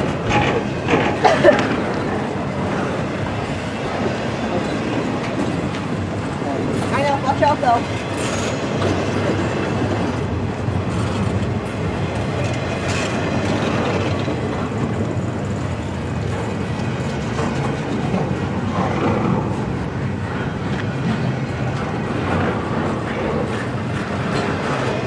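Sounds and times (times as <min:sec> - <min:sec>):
steel wheels rumbling on rails: 0:00.0 - 0:25.0.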